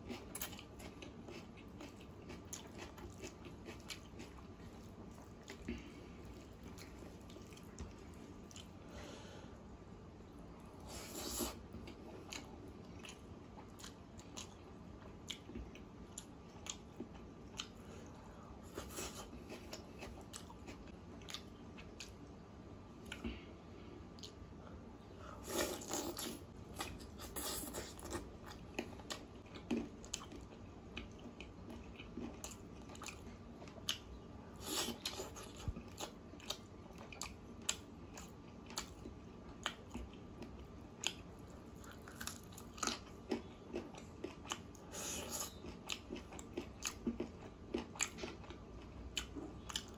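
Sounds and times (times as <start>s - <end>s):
close-up chewing: 0.0s - 8.8s, 25.2s - 49.9s.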